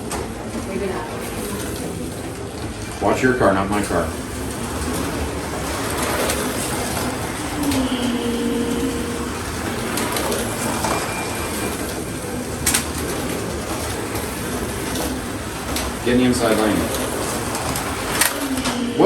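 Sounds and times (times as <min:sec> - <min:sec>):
slot car motors whirring: 0:00.0 - 0:19.0.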